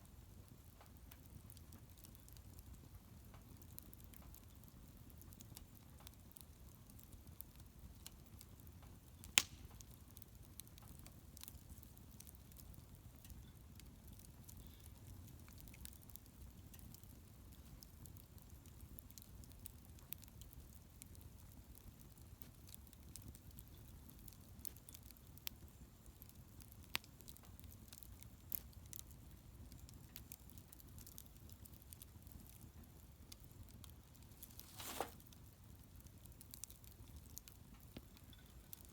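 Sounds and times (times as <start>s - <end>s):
bonfire crackling: 0.0s - 38.9s
sharp pops of fire: 0.8s - 38.9s.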